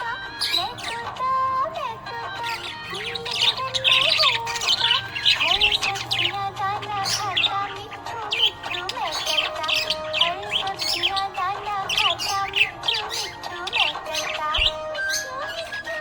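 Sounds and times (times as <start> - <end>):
budgerigars chirping and warbling: 0.0 - 16.0.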